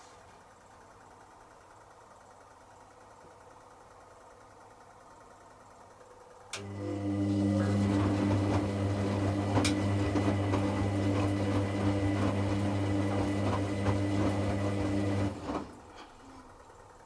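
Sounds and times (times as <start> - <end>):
washing machine motor humming: 0.4 - 17.0
water and laundry sloshing: 7.3 - 16.4.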